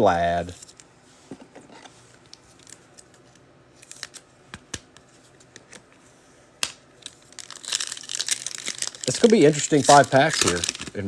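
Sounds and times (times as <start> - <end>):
cards clicking and snapping: 7.7 - 11.0.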